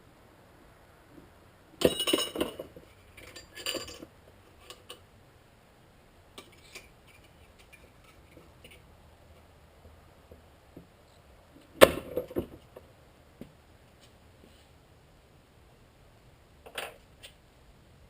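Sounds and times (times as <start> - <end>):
metal objects clinking: 1.8 - 5.0.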